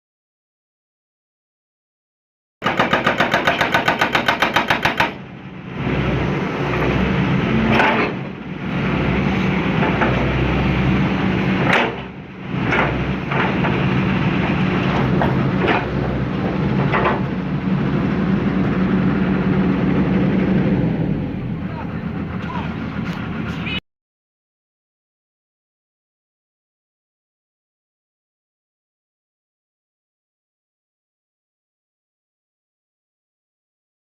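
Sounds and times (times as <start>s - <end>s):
sharp knocks and cracks: 2.6s - 5.2s, 11.6s - 13.8s, 16.8s - 17.2s
hydraulic breaker hammering: 2.6s - 5.5s, 7.5s - 8.4s, 11.5s - 17.6s
diesel engine running: 2.6s - 23.8s.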